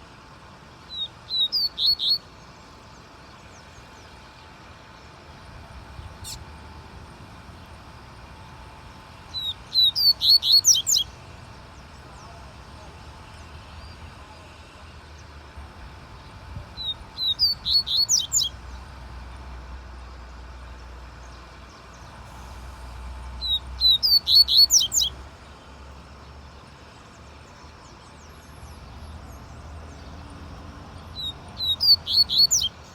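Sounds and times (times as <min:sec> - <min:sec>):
bird whistling song: 0:00.9 - 0:02.4, 0:09.3 - 0:11.2, 0:16.8 - 0:18.6, 0:23.3 - 0:25.2, 0:31.0 - 0:32.9.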